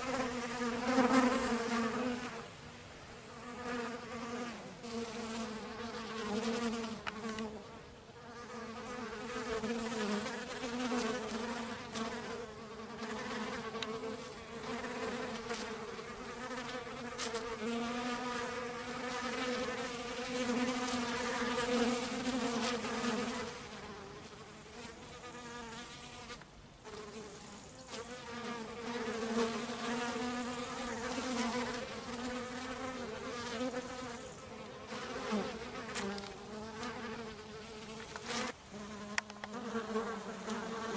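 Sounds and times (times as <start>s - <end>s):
bees buzzing: 26.9s - 40.9s.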